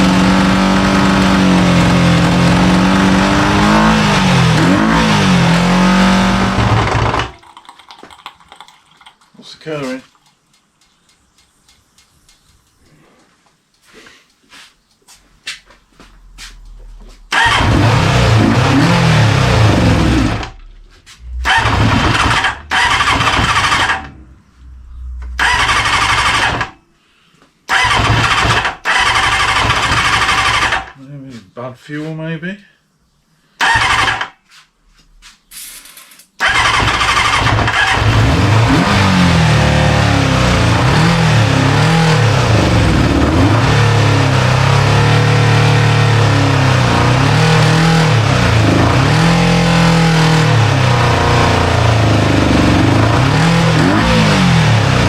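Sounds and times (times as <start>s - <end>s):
motorcycle engine running: 0.0s - 7.3s, 36.7s - 55.0s
starter motor cranking: 6.6s - 7.4s, 17.3s - 17.9s.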